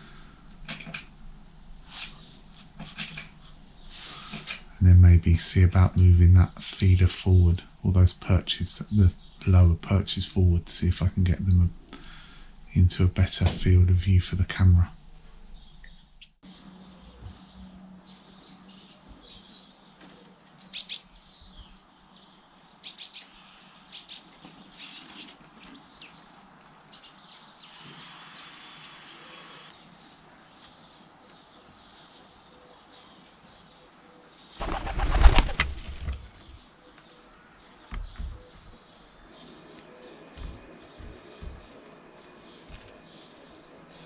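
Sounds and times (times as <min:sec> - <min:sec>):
garden birds chirping: 0:00.0 - 0:44.0
high falling bird calls: 0:01.8 - 0:44.0
pigeon wings clattering: 0:34.6 - 0:36.4.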